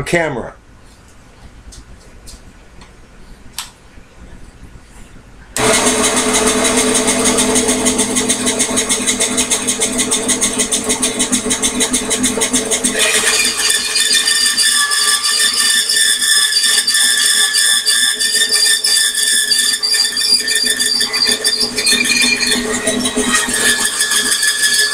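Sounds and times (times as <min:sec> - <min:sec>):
bandsaw humming: 0:05.6 - 0:24.9
saw blade cutting whine: 0:05.6 - 0:24.9.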